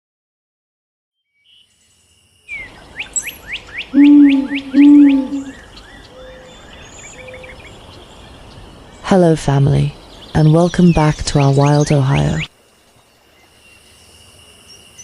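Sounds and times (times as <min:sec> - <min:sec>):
soft bird chirps: 0:01.4 - 0:08.8
long low bird calls: 0:02.5 - 0:12.5
bird whistling descending notes: 0:03.1 - 0:05.6.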